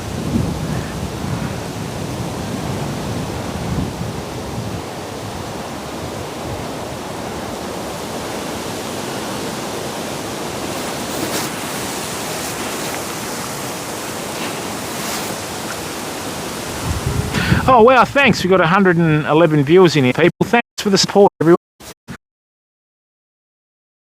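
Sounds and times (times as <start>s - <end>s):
strong wind rushing: 0.0s - 19.2s.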